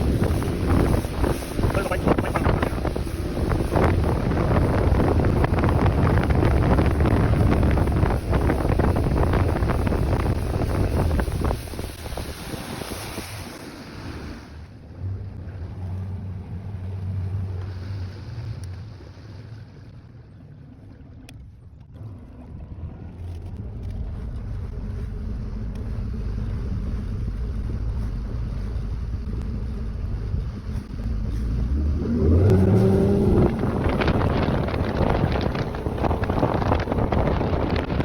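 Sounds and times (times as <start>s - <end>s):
wind on microphone: 0.0s - 14.6s, 23.5s - 38.0s
boat motor humming: 0.0s - 38.0s.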